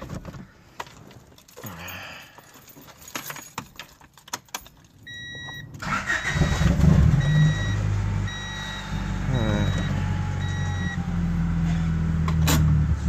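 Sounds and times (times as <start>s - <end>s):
keys jangling: 1.1s - 5.0s
car engine cranking and starting: 4.2s - 13.0s
electronic chime beeping: 5.1s - 11.0s.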